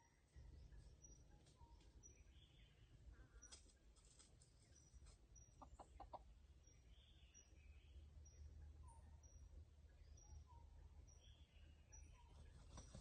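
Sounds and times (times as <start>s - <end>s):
small birds chirping: 0.0s - 13.0s
chicken clucking: 5.5s - 6.3s.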